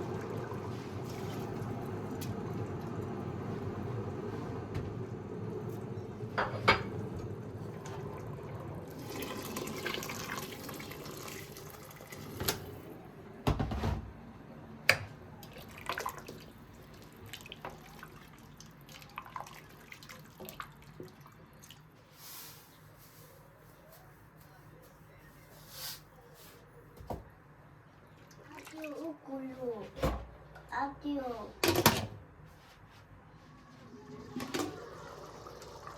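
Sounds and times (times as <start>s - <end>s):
tap water running into sink: 7.1s - 12.7s, 34.2s - 35.9s.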